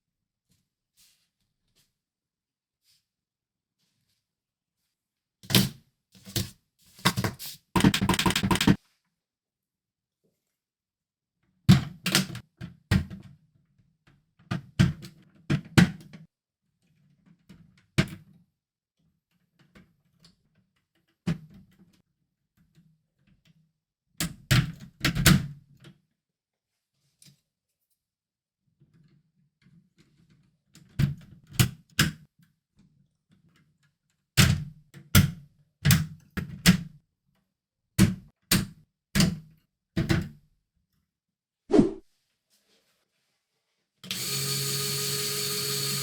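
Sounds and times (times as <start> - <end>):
plastic parts knocking and clattering: 6.3 - 8.8.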